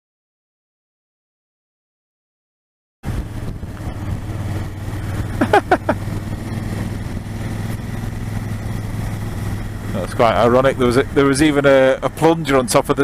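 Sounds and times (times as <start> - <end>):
motorcycle engine cruising: 3.0 - 13.0.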